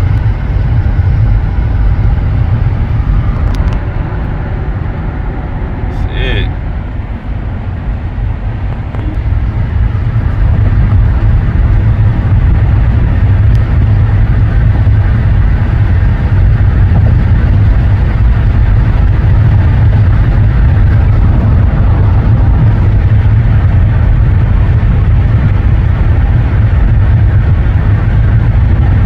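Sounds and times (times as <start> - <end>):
car road and wind noise: 0.0 - 29.0.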